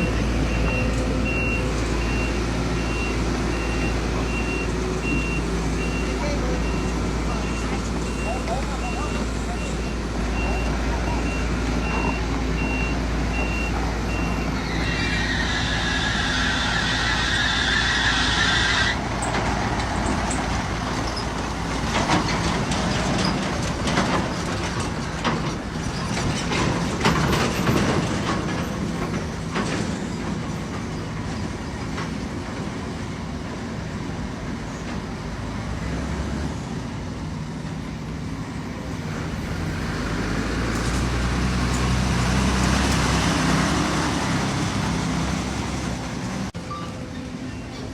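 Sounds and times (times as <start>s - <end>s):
reversing beeper: 0.0s - 14.5s
diesel engines running: 0.0s - 47.9s
high squeal: 14.4s - 19.0s.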